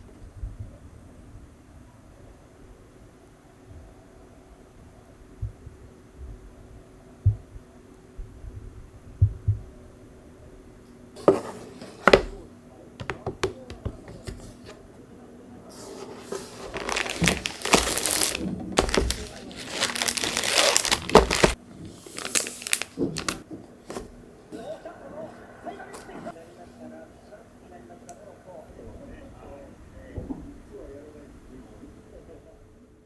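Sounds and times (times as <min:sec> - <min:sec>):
knocks: 0:13.0 - 0:14.3
packaging crinkling and rustling: 0:15.9 - 0:23.4.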